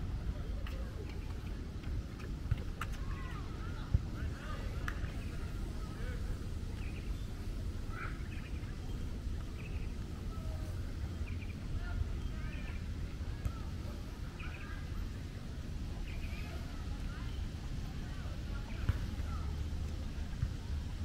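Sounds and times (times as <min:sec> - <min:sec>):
birds chirping: 0:11.1 - 0:12.7.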